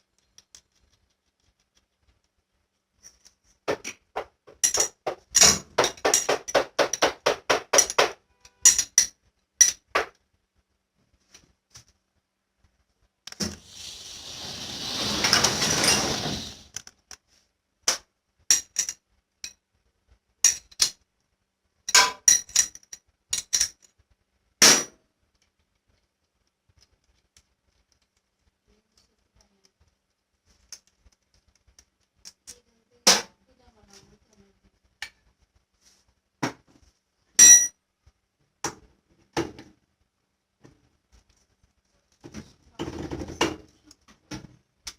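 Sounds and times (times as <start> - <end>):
metal clinks and knocks: 3.0 - 10.1
rushing noise: 13.6 - 16.7.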